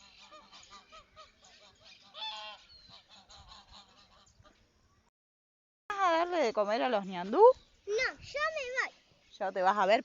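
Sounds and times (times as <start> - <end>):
waterfowl calling: 0.0 - 4.6.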